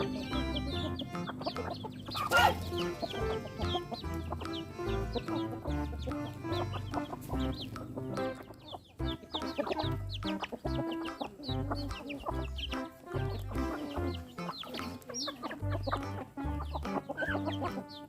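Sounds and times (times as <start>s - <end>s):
chickens clucking: 0.0s - 18.0s
music with repeating bass line: 0.0s - 18.0s.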